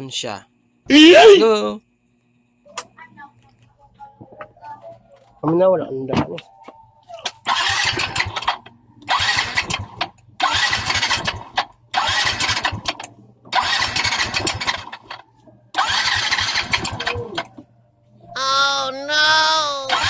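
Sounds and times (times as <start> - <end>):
scooter electric starter cranking: 7.4 - 17.5.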